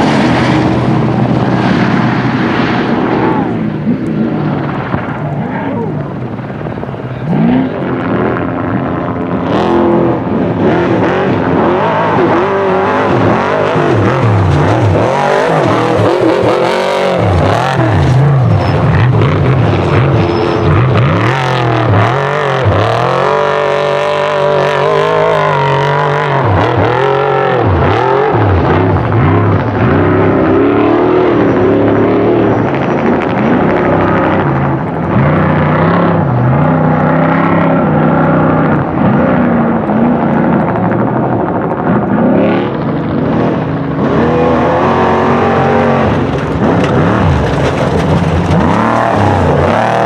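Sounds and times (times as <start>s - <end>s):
truck engine revving hard: 0.0s - 50.0s.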